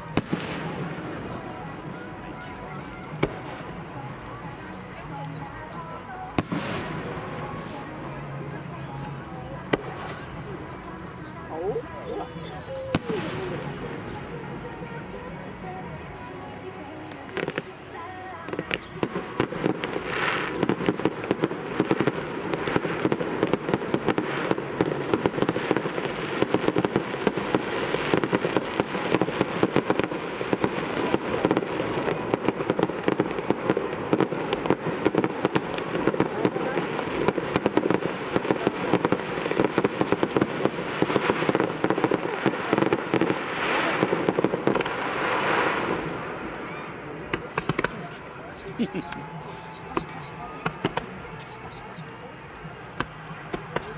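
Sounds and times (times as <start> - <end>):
firework shells bursting: 18.5 - 52.0.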